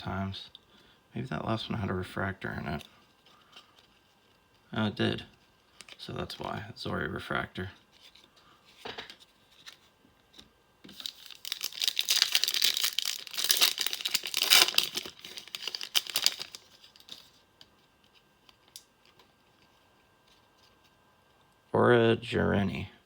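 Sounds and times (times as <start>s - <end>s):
wrapper tearing and crinkling: 10.9s - 17.4s.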